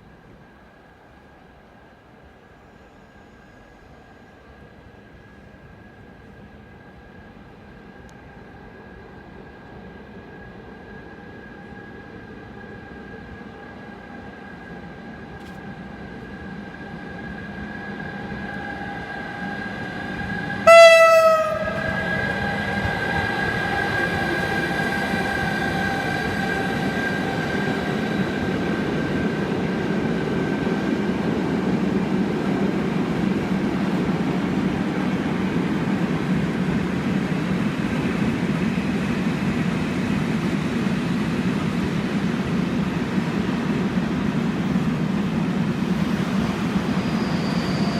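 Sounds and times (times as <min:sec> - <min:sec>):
train rumbling past: 0:00.0 - 0:47.9
train horn blast: 0:20.6 - 0:22.3.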